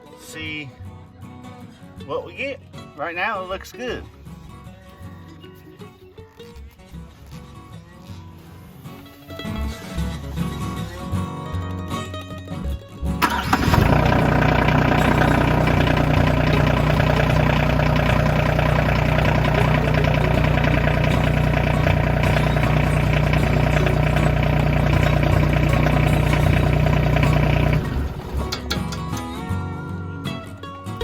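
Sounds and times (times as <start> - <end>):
tractor diesel engine idling: 13.2 - 28.8.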